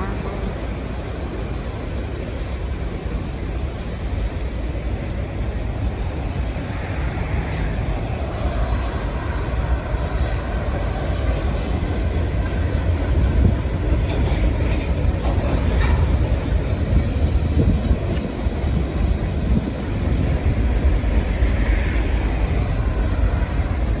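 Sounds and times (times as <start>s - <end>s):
freight train wheels rumbling on rails: 0.0s - 24.0s.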